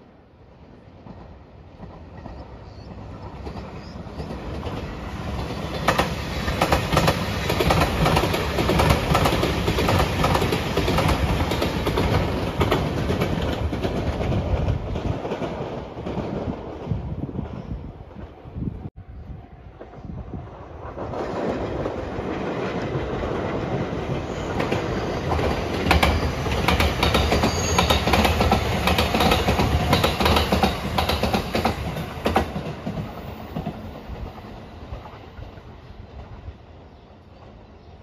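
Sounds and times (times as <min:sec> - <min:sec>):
electric train passing: 0:00.0 - 0:37.8
wheels clacking over rail joints: 0:03.2 - 0:16.7, 0:21.0 - 0:35.2.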